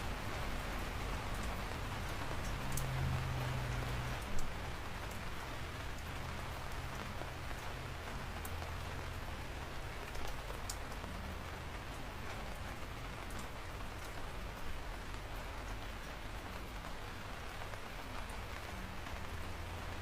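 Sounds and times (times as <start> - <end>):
raindrops ticking: 0.0 - 20.0
steady rain falling: 0.0 - 20.0.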